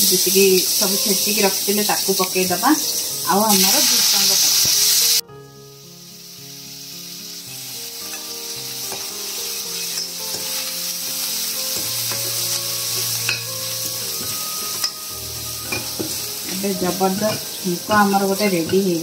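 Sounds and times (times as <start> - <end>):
leaves and garlic sizzling in oil: 0.0 - 19.0
metal ladle scraping pan: 12.9 - 18.9.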